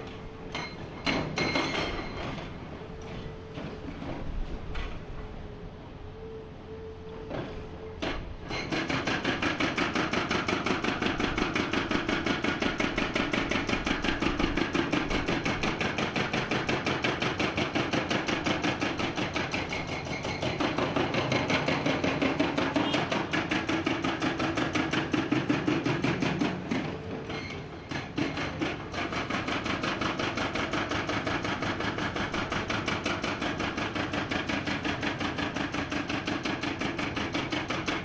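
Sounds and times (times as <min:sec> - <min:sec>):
hydraulic breaker pounding rock: 0:08.1 - 0:38.0.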